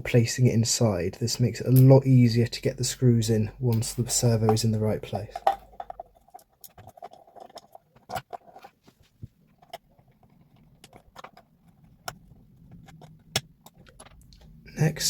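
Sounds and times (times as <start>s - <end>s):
small plastic parts clicking: 9.5s - 14.6s.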